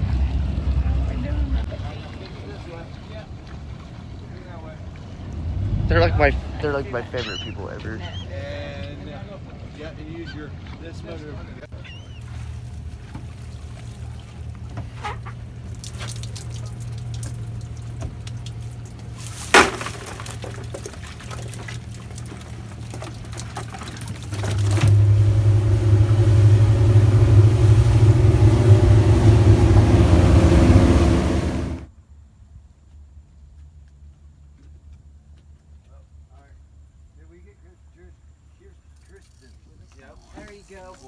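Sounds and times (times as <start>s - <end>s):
boat motor running: 0.0s - 10.8s, 11.7s - 31.9s
water rushing: 12.0s - 31.9s.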